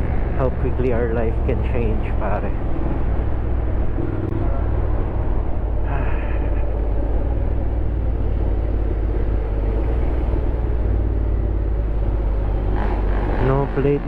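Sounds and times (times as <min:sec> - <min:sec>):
motorcycle engine running: 0:10.4 - 0:14.0.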